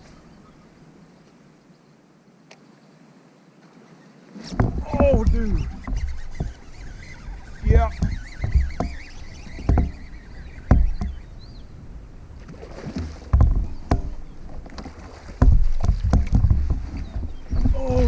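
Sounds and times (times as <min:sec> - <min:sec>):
water splashing: 0:03.7 - 0:18.0
knocks on kayak hull: 0:09.6 - 0:10.0, 0:10.6 - 0:11.2, 0:12.9 - 0:18.0.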